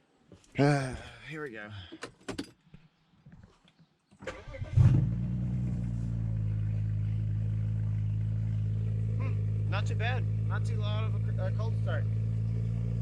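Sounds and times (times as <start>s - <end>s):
car engine idling: 4.4s - 13.0s.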